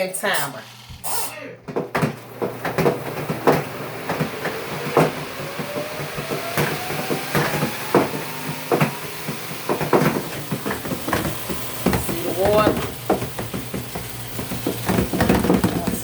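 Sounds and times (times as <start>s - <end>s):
washing machine spin motor whine: 0.0s - 16.0s
water draining hiss: 0.2s - 1.4s
knocks and rattles: 1.6s - 16.0s.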